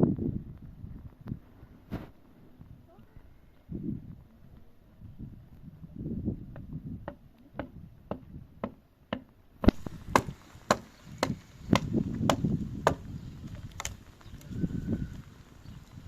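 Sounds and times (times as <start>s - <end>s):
hammer driving nails into wood: 7.0s - 13.0s.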